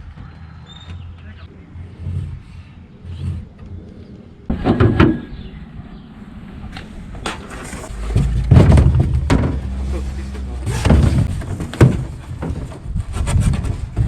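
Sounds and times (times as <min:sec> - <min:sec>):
low rumble: 0:01.3 - 0:14.0
clattering knocks: 0:04.5 - 0:05.4, 0:06.7 - 0:14.0.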